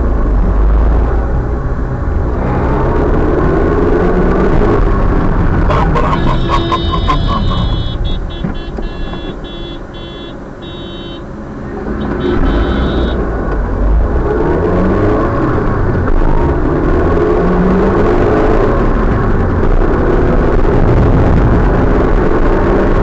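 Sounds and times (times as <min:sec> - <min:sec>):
road noise: 0:00.0 - 0:23.0
vehicle engine running: 0:05.7 - 0:09.2
tractor horn beeping: 0:05.7 - 0:11.4, 0:12.0 - 0:13.2.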